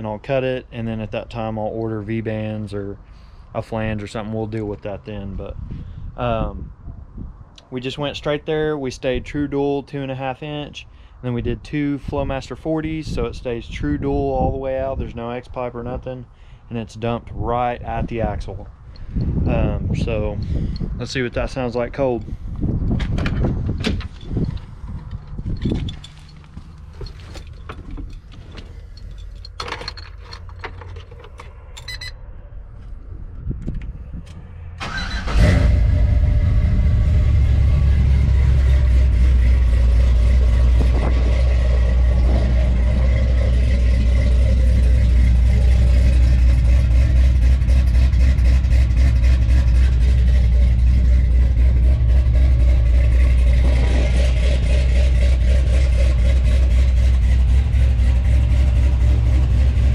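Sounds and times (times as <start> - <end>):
engine starting and idling: 34.8 - 59.9.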